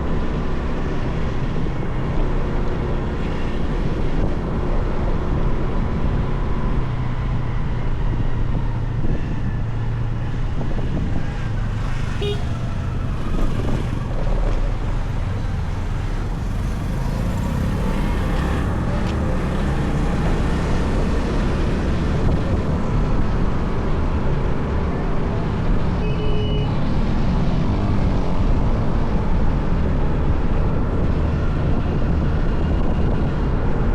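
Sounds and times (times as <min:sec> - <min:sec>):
city traffic: 0:00.0 - 0:33.9
road and wind noise: 0:00.0 - 0:33.9.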